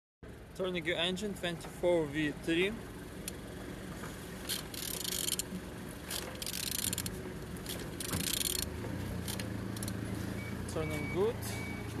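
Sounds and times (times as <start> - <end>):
engine turned over by hand: 3.2 - 10.4.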